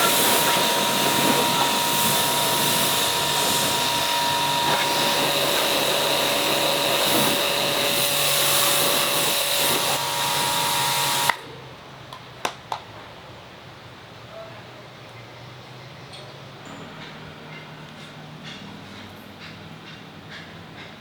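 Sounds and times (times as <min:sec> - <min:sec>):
workshop tool hissing and whining: 0:00.0 - 0:11.5.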